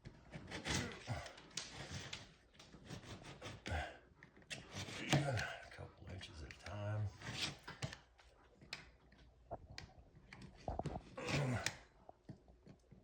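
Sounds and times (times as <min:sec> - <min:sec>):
knife blade scraping sheetrock: 0:00.2 - 0:03.7, 0:04.5 - 0:05.4, 0:07.2 - 0:07.9.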